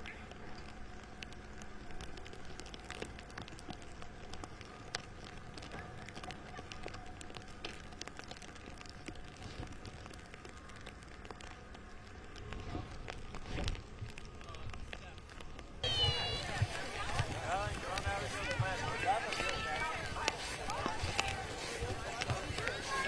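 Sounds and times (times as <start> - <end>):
sleet pattering: 15.8 - 23.0.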